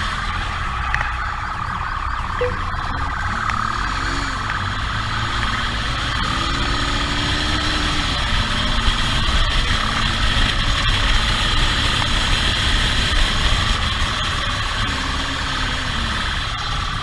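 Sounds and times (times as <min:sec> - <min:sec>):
motorcycle engine revving: 0:02.3 - 0:17.0.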